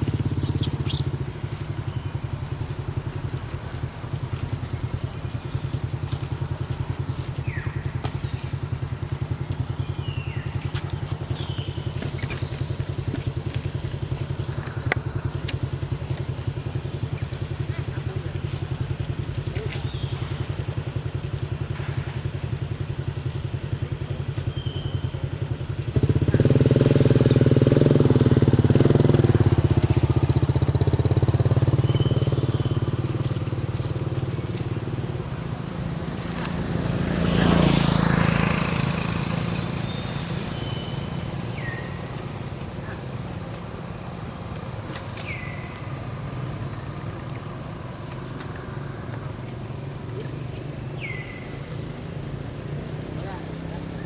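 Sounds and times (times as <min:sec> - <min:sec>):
vehicle engine running: 0:00.0 - 0:54.0
vehicle passing: 0:26.0 - 0:54.0.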